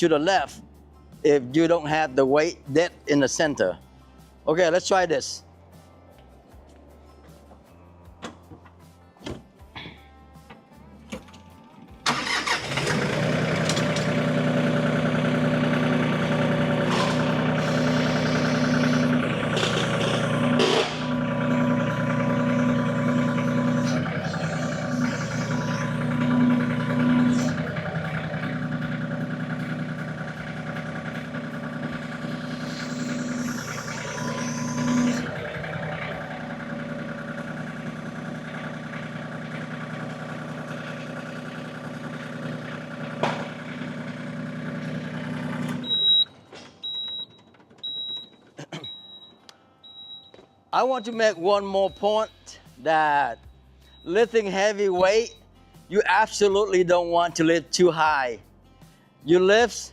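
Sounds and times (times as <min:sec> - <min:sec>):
tractor diesel engine running: 0:12.0 - 0:49.3
high beeps: 0:45.8 - 0:46.3.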